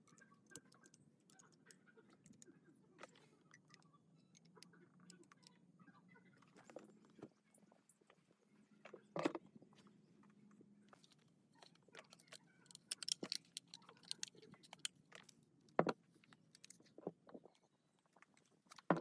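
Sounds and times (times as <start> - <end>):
clicks taps and clinks: 12.1 - 16.0.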